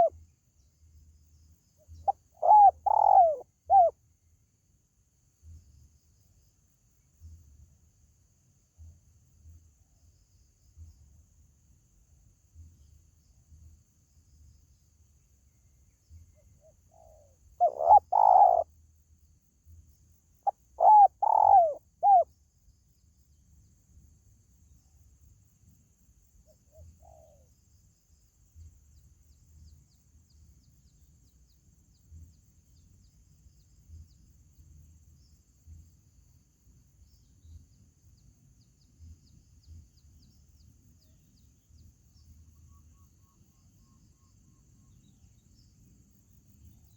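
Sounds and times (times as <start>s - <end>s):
dove cooing: 2.0s - 3.9s, 16.9s - 18.7s, 20.4s - 22.3s, 26.7s - 27.5s.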